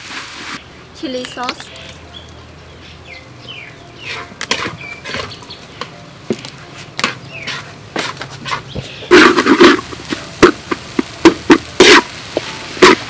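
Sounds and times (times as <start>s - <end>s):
bird chirps: 0.6s - 6.5s, 7.2s - 7.7s, 8.7s - 9.1s
metal utensil scraping in a pan: 4.0s - 5.5s, 6.7s - 13.0s.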